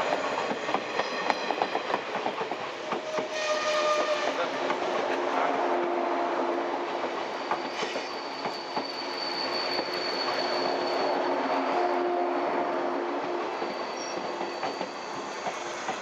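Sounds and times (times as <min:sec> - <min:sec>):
electric train rumbling on rails: 0:00.0 - 0:16.0
thin high squeal: 0:07.4 - 0:11.5, 0:13.6 - 0:15.8.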